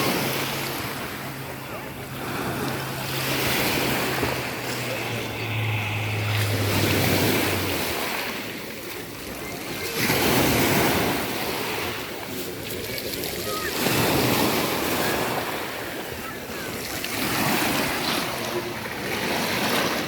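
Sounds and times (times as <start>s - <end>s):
low steady hum: 0.0s - 9.6s
sea waves breaking on shore: 0.0s - 20.0s.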